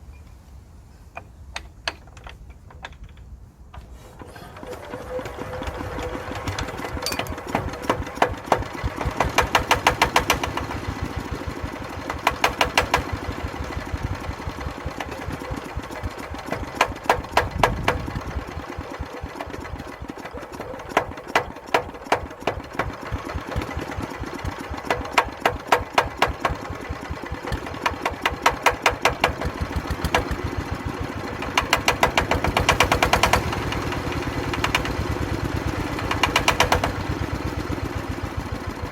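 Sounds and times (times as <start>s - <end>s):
diesel engine chugging: 4.2s - 38.9s.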